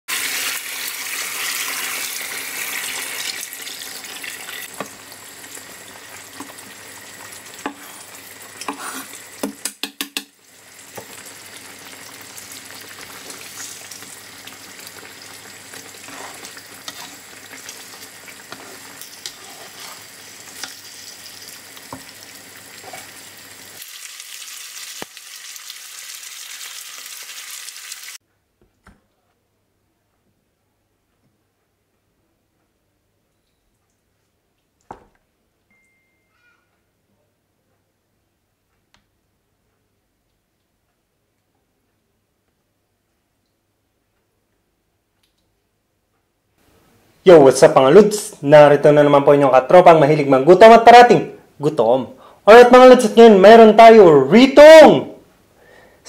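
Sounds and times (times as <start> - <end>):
chicken sizzling in a pan: 0.1 - 9.6, 10.3 - 28.2.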